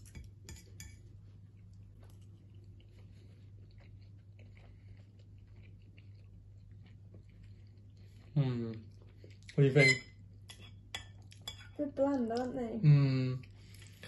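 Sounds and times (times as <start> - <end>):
chewing soft pancakes: 0.0 - 9.6, 13.4 - 14.0.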